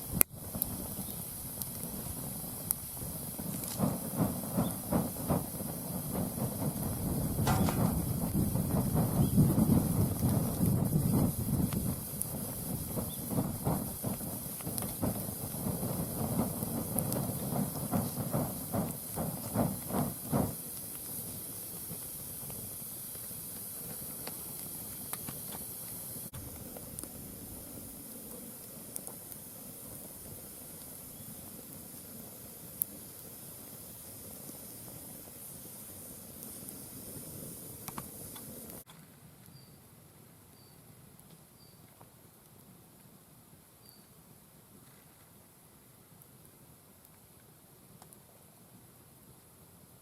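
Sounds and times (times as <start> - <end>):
low fluttering puffs: 0.0 - 28.9
wood fire hissing and crackling: 0.0 - 50.0
rhythmic whooshing pulses: 3.0 - 20.6.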